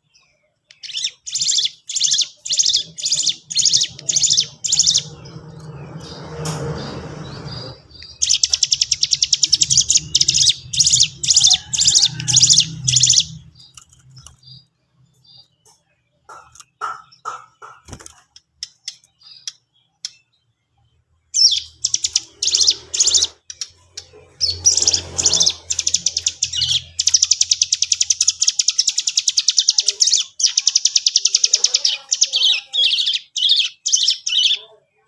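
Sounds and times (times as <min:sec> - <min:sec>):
bird chirping and chattering: 0:00.0 - 0:20.5, 0:21.2 - 0:34.8
fast bird trill: 0:00.8 - 0:06.2, 0:07.5 - 0:14.6, 0:21.4 - 0:34.7.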